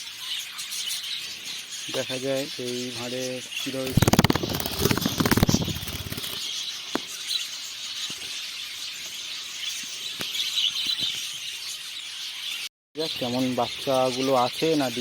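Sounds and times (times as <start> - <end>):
budgie chatter: 3.6 - 6.4.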